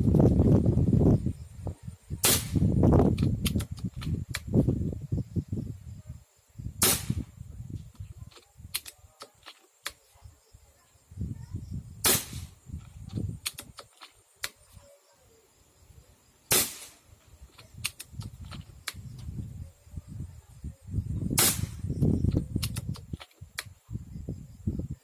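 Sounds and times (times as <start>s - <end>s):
air rifle shots: 2.2s - 2.7s, 6.8s - 7.3s, 12.0s - 12.6s, 16.5s - 17.0s, 21.4s - 21.9s
magazine clicks: 3.2s - 4.5s, 8.3s - 10.0s, 13.4s - 14.6s, 17.5s - 19.3s, 22.6s - 23.7s.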